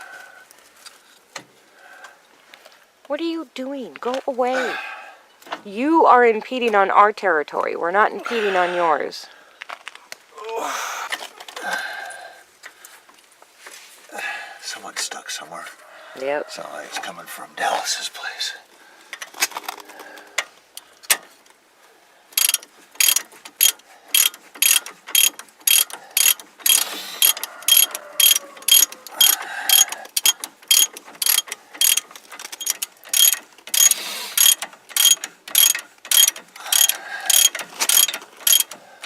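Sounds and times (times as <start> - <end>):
ratchet wrench clicking: 22.4 - 38.8.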